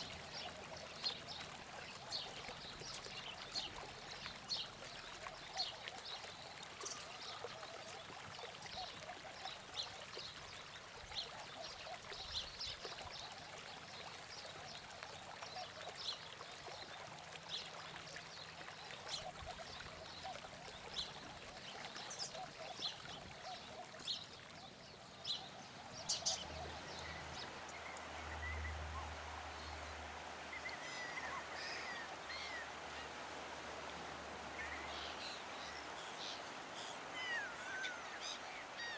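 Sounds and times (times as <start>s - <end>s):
birds chirping: 18.8s - 38.9s.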